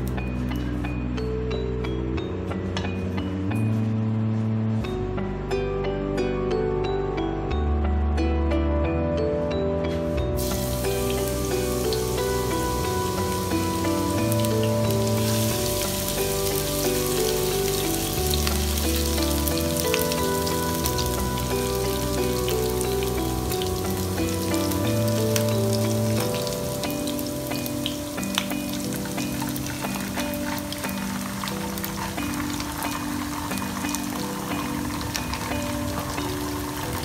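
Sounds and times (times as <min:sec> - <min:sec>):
background music: 0:00.0 - 0:37.0
food sizzling in hot oil: 0:10.4 - 0:37.0.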